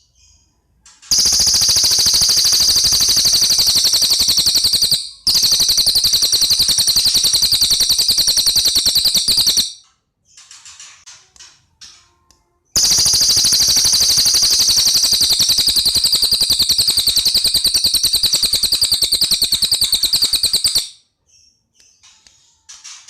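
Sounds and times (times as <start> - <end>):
faint bird chirps: 0.0 - 10.6, 12.5 - 23.0
songbird trilling: 1.1 - 9.7, 12.8 - 20.9.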